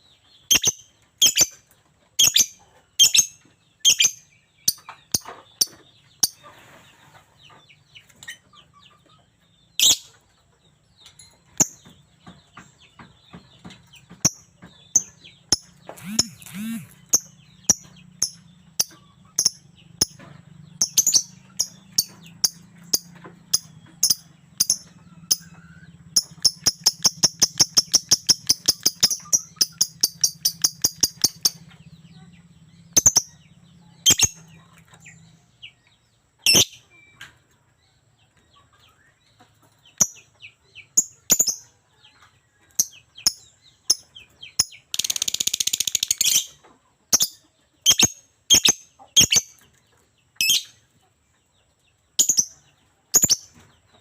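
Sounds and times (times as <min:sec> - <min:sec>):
lovebird chattering in high chirps: 0:00.5 - 0:01.6, 0:02.2 - 0:06.4, 0:15.0 - 0:20.2, 0:20.8 - 0:25.5, 0:26.2 - 0:31.6, 0:34.0 - 0:34.4, 0:36.5 - 0:36.8, 0:44.6 - 0:46.5, 0:47.2 - 0:49.5.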